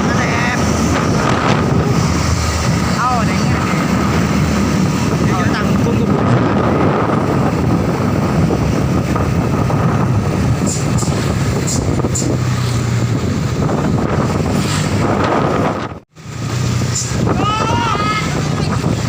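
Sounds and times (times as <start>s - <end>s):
truck engine and road noise: 0.0s - 19.0s
wind buffeting microphone: 0.0s - 19.0s.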